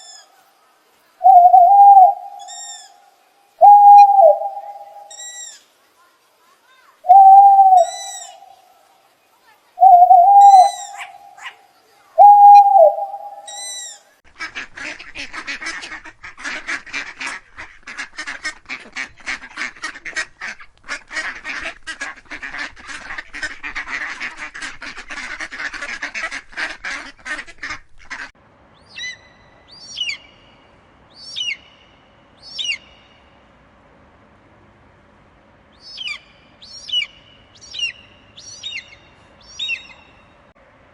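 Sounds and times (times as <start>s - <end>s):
eagle shrill calls: 1.2s - 2.9s, 3.6s - 5.5s, 7.1s - 8.6s, 9.8s - 11.5s, 12.2s - 14.0s, 35.8s - 40.0s
ducks quacking: 14.3s - 28.3s.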